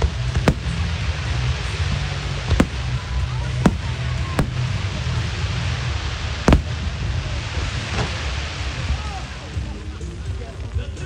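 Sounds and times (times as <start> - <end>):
firework shells bursting: 0.0 - 5.2, 5.8 - 7.2
low background noise: 0.0 - 11.0.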